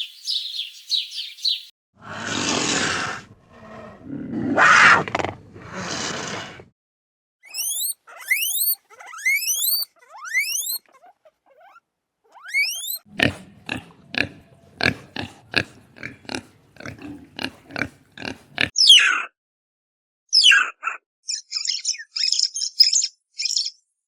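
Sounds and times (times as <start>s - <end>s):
animal grunts: 2.0s - 6.7s, 13.1s - 18.7s
animal rising chirps: 7.4s - 13.1s.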